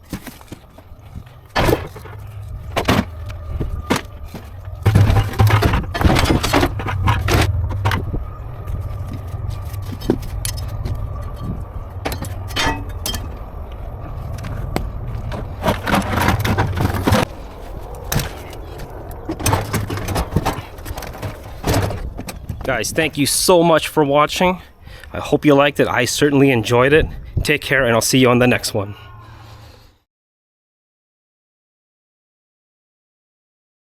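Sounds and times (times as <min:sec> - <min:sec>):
metal clattering and scraping: 0:00.0 - 0:22.7
steady low hum: 0:00.0 - 0:29.8.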